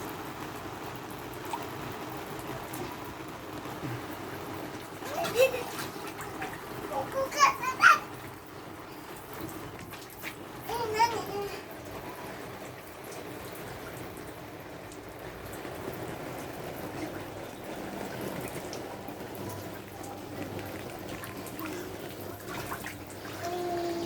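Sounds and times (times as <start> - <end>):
steady rain: 0.0 - 24.0
light drip-like taps: 2.4 - 12.0, 12.6 - 23.4.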